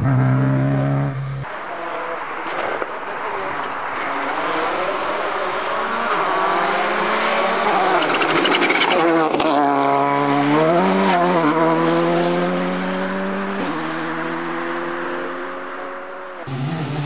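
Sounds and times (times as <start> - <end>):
rally car engine revving: 0.0 - 17.0
engine crackle: 1.5 - 10.7.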